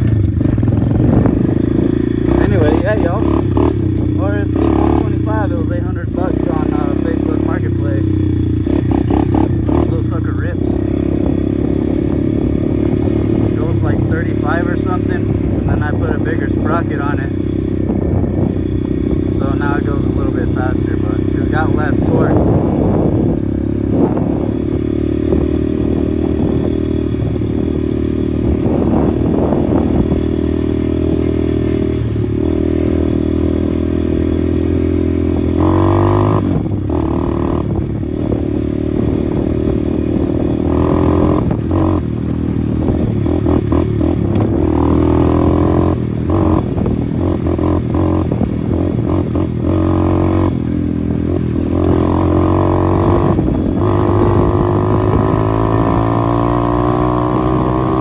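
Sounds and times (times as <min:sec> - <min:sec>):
motorbike engine running: 0:00.0 - 0:58.0.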